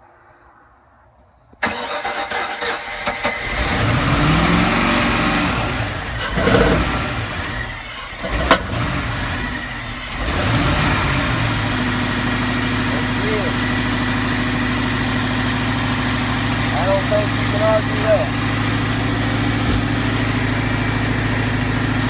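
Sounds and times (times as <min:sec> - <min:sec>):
engine starter cranking: 0:01.6 - 0:03.9
engine pops: 0:19.4 - 0:20.3.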